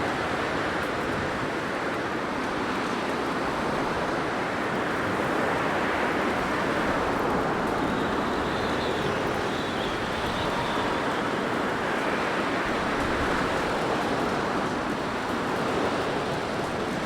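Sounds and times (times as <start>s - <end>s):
blizzard wind rushing: 4.4s - 17.0s
faint high wind whistle: 5.4s - 14.6s.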